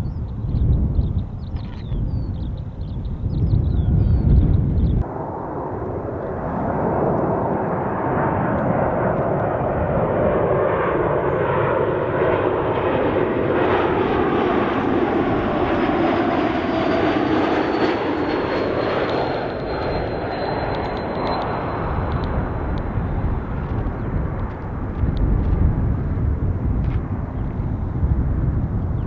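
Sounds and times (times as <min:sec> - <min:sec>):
jet engines rushing: 0:00.0 - 0:29.0
high engine whine: 0:14.6 - 0:27.9.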